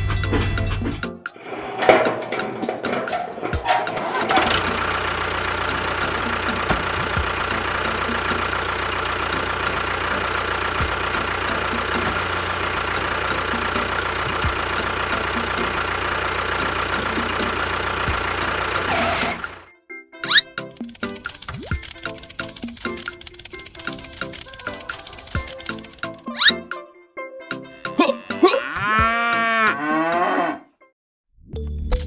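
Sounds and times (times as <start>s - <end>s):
engine clattering: 0.0s - 19.7s, 20.3s - 26.5s
engine running with whine: 1.8s - 26.5s
light regular ticking: 2.0s - 18.9s, 20.7s - 26.5s.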